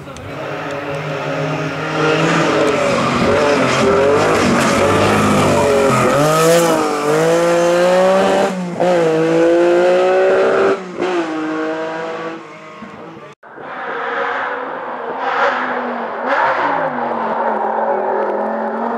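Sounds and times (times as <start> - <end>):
race car engine at full throttle: 0.0 - 18.9.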